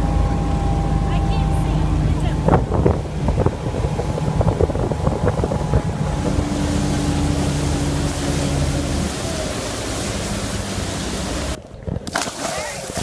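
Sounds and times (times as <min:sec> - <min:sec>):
motorboat engine running: 0:00.0 - 0:13.0
water rushing: 0:00.0 - 0:13.0
wind on microphone: 0:00.0 - 0:13.0.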